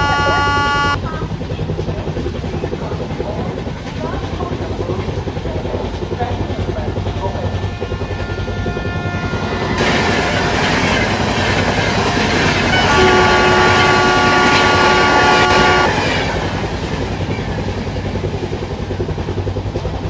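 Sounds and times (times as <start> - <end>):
locomotive horn chord: 0.0 - 1.0, 8.1 - 9.8, 12.7 - 16.0.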